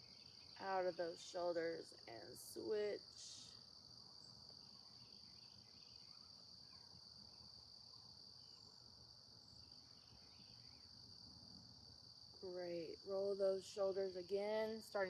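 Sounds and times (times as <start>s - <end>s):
high-pitched insect chorus: 0.0s - 15.0s
faint bird chirps: 4.2s - 11.0s.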